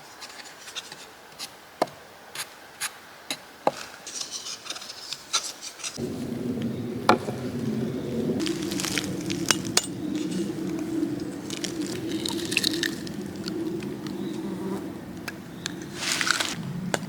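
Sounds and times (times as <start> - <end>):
low steady hum: 6.0 - 17.0.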